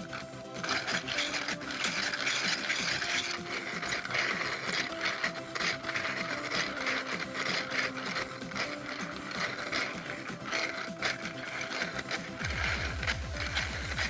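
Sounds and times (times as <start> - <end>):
plastic engine model clattering: 0.0 - 14.0.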